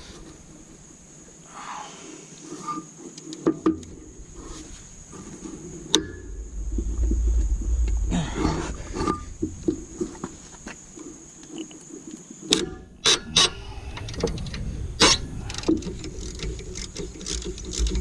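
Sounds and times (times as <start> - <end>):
low steady hum: 3.8 - 11.4.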